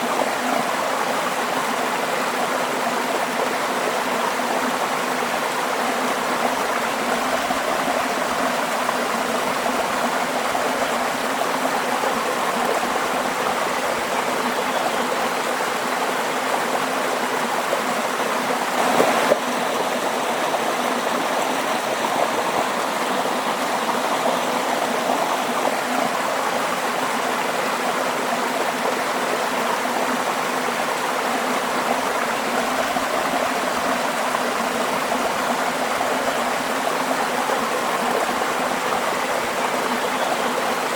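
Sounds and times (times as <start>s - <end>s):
waterfall rushing: 18.3s - 27.5s.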